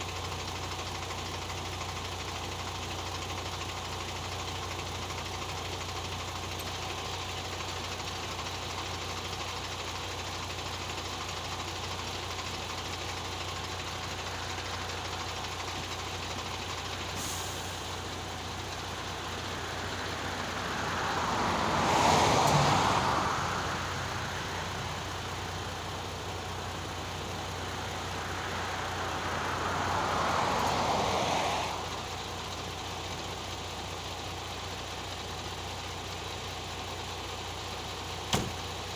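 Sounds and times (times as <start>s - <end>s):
diesel truck engine idling: 0.0s - 38.9s
vehicles passing by: 12.6s - 33.7s.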